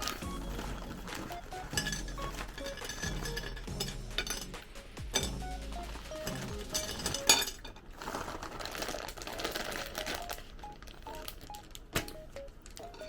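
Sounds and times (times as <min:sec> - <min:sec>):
soft melodic background music: 0:00.0 - 0:07.6, 0:09.5 - 0:13.0
kitchenware clicking and clinking: 0:00.0 - 0:07.9, 0:12.8 - 0:13.0
rustling and crinkling: 0:00.0 - 0:13.0.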